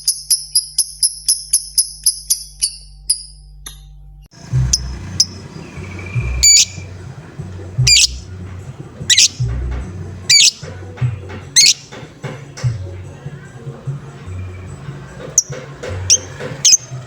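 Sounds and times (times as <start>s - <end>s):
low background rumble: 4.3s - 11.7s
lovebird shrill calls: 4.7s - 8.3s, 9.0s - 9.5s, 10.2s - 10.7s, 11.6s - 11.9s.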